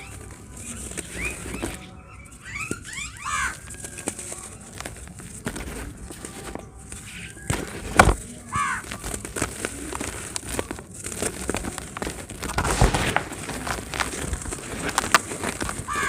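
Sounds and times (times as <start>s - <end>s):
dry cement crumbling: 3.5s - 16.0s.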